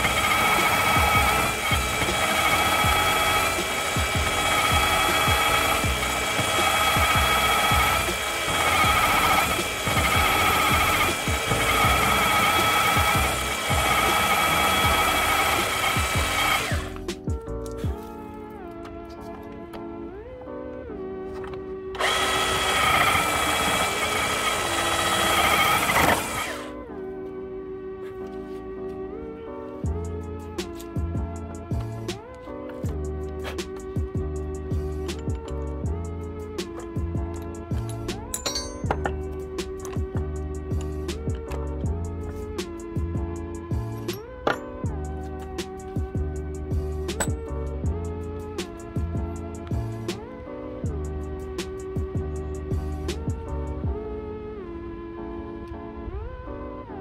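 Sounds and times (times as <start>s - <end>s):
rotary hammer drilling wood: 0.0s - 18.1s, 22.0s - 26.8s, 47.1s - 47.6s
background music: 0.0s - 57.0s.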